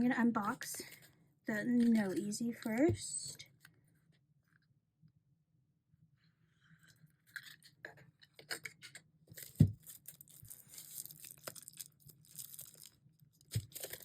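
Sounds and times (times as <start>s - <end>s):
packaging crinkling and rustling: 7.3s - 14.0s.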